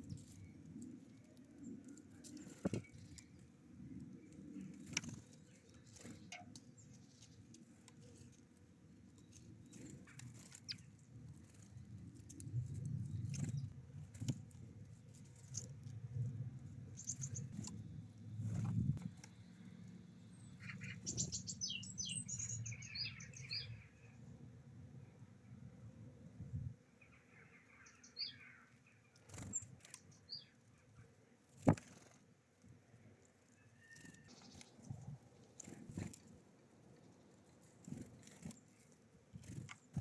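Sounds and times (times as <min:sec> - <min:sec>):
songbirds chirping: 0:00.0 - 0:40.0
high bird calls: 0:20.3 - 0:24.0.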